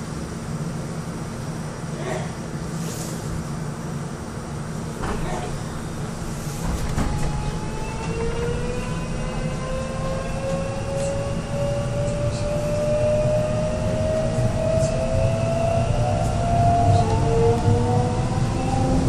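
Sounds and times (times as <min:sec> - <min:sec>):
electric train motor whine: 0:06.9 - 0:19.0.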